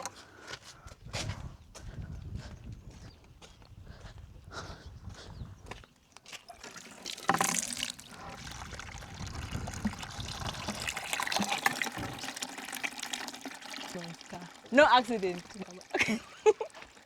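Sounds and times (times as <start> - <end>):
water running and splashing: 6.3 - 17.0.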